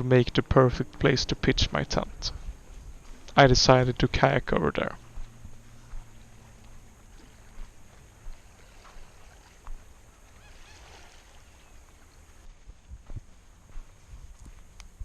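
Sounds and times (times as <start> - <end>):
faint bird calls: 4.8 - 12.5
paddle strokes splashing in water: 5.2 - 13.0.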